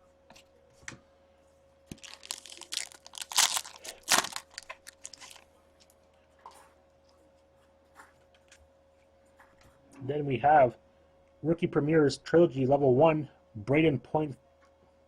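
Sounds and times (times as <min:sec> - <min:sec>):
foil wrapper crinkling and tearing: 0:01.9 - 0:05.9.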